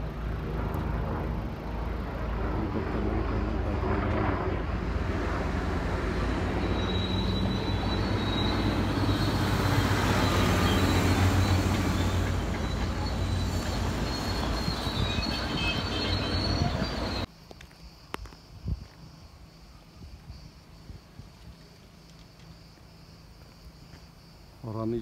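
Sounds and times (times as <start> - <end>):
helicopter engine drone: 0.0 - 15.4.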